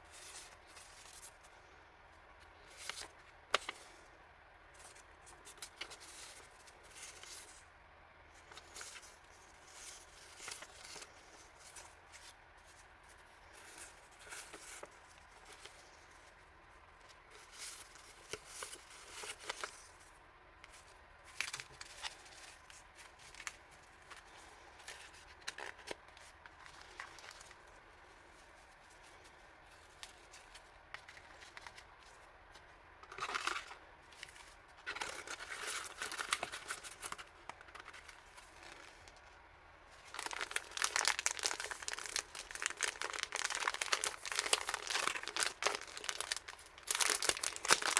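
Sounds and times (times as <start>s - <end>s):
packaging rustling and crinkling: 20.7s - 39.3s, 39.9s - 47.9s.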